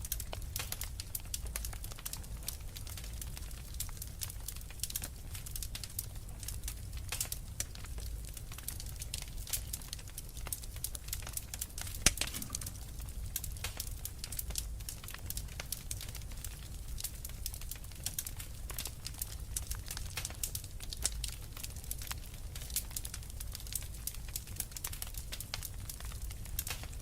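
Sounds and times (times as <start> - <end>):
low rumble of flames: 0.0 - 27.0
wood fire crackling: 0.0 - 27.0
loud fire pop: 12.0 - 13.8.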